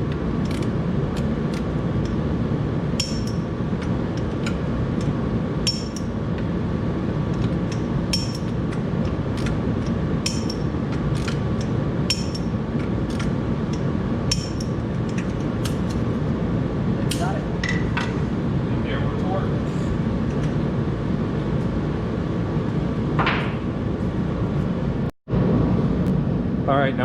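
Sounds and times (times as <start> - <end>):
steady low hum: 0.0 - 27.0
wrench clicking on bolts: 0.1 - 2.2, 7.3 - 16.0.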